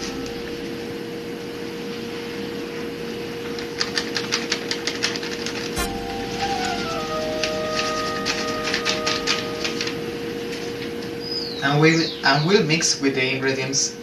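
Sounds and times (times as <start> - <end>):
low hum with held tone: 0.0 - 3.8, 5.8 - 13.2.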